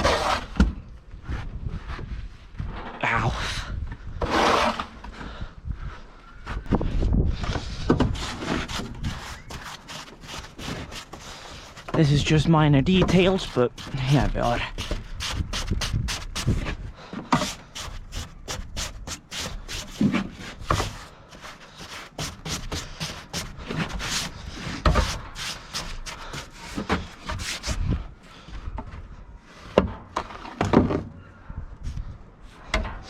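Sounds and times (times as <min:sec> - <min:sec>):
rubbing and scraping in snow: 0:00.0 - 0:00.6, 0:04.2 - 0:05.0, 0:08.1 - 0:16.8, 0:17.4 - 0:28.0.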